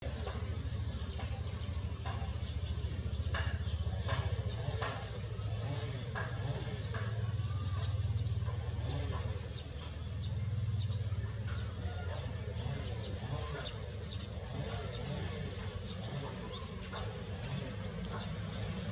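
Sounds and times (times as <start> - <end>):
insects chorus: 0.0 - 18.9.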